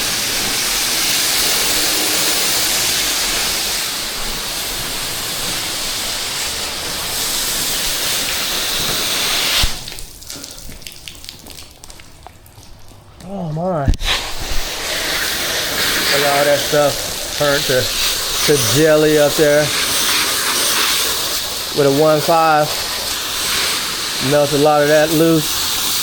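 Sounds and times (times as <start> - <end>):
pressure washer spraying water: 0.0 - 10.5, 13.9 - 26.0.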